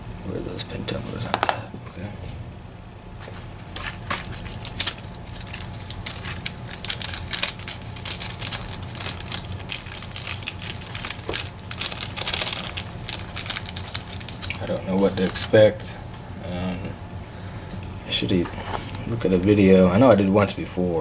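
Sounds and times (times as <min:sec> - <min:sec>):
steady low hum: 0:00.0 - 0:21.0
small metal clicks and scrapes: 0:03.7 - 0:15.5.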